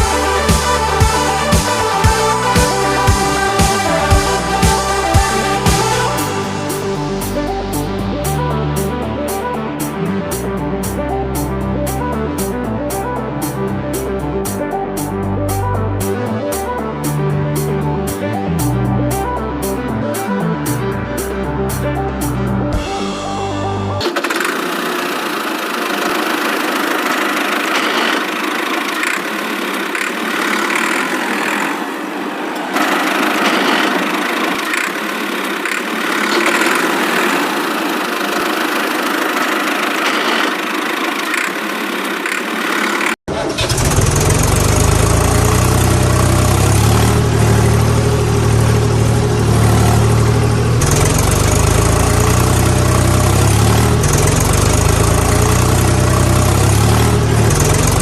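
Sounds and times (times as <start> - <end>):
deep engine with low hum: 0.0 - 24.7, 43.5 - 58.0
vehicle engine running: 0.0 - 58.0.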